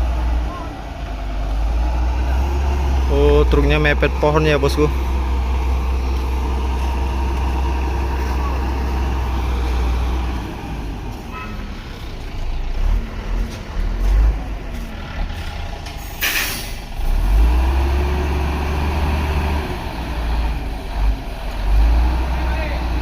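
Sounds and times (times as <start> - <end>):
heavy truck engine labouring: 0.0 - 23.0
air brake hiss: 16.0 - 16.9.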